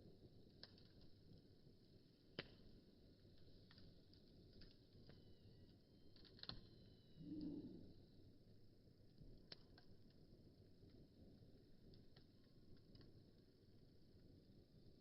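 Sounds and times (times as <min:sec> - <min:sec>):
wood fire crackling: 0:00.0 - 0:15.0
sharp pops of fire: 0:02.3 - 0:05.2.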